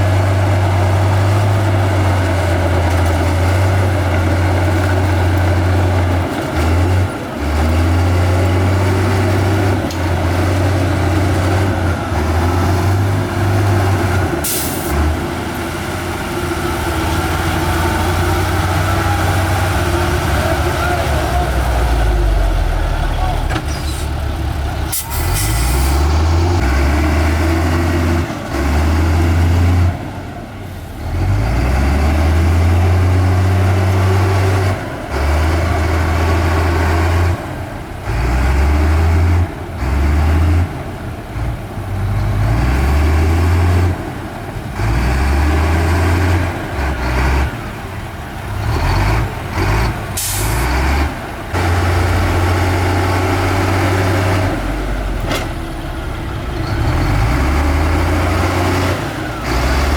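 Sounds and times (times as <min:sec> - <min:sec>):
diesel machinery rumbling: 0:00.0 - 0:59.9
air brake hisses: 0:14.4 - 0:15.0, 0:23.7 - 0:24.2, 0:24.9 - 0:26.0, 0:50.2 - 0:50.6.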